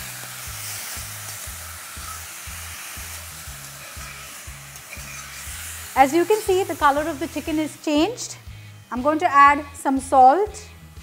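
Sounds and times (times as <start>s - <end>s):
chicken sizzling in hot oil: 0.0s - 11.0s
metal spatula stirring: 0.2s - 7.4s.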